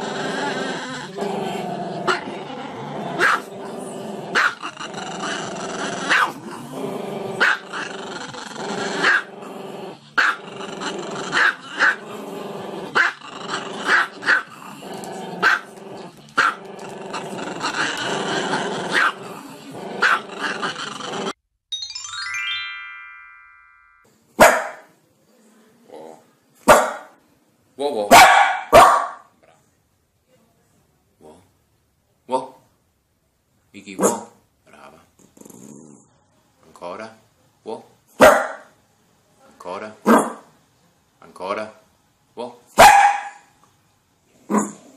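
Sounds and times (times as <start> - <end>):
dog growling: 0.0 - 21.4, 34.7 - 36.1
dog barking: 3.2 - 3.5, 4.4 - 4.6, 6.1 - 6.4, 7.4 - 7.6, 18.9 - 19.2, 24.4 - 24.9, 26.7 - 27.2, 28.1 - 29.3, 34.0 - 34.4, 38.2 - 38.7, 40.1 - 40.5, 42.8 - 43.5.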